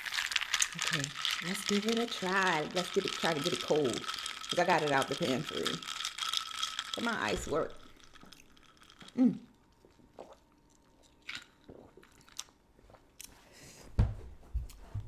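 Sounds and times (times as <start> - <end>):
sipping and swallowing: 9.8 - 12.5.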